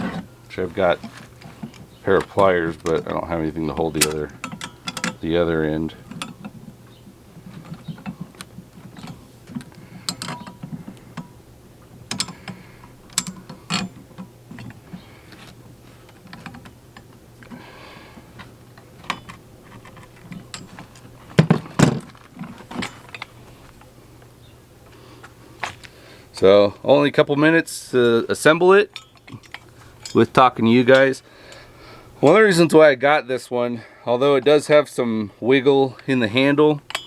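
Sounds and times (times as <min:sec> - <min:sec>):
steel tool parts clicking and tapping: 0:00.8 - 0:06.7, 0:07.4 - 0:17.7, 0:18.4 - 0:23.4, 0:28.7 - 0:31.7, 0:36.8 - 0:37.0.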